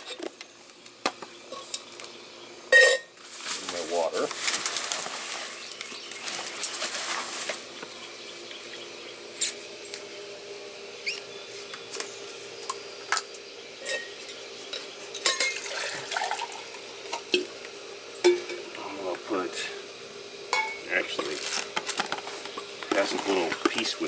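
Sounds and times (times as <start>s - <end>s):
metal cooking pot clinking: 15.2s - 15.6s.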